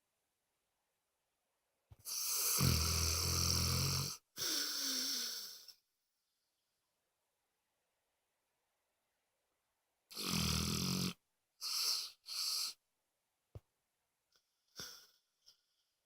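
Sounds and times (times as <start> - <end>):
dog snoring: 2.0 - 5.6, 10.1 - 12.8.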